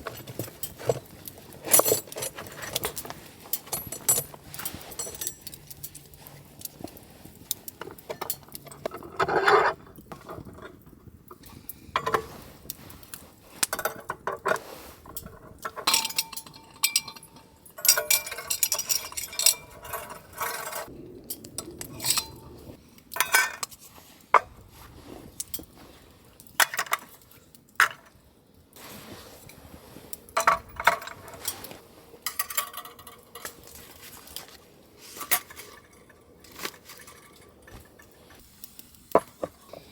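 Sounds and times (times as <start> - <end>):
metal cookware clinking: 15.7 - 20.9, 32.3 - 33.7.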